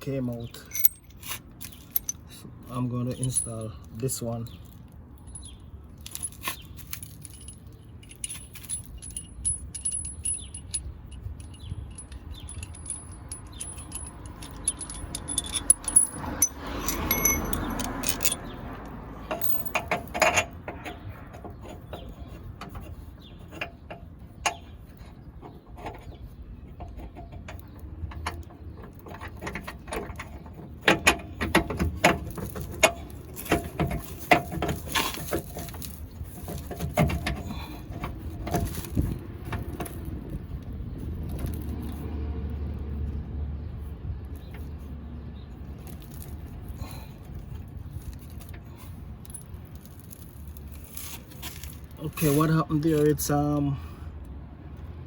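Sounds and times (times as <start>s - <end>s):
metal tools clinking and knocking: 0.3s - 2.4s, 3.0s - 4.1s, 5.2s - 22.9s, 26.8s - 40.0s.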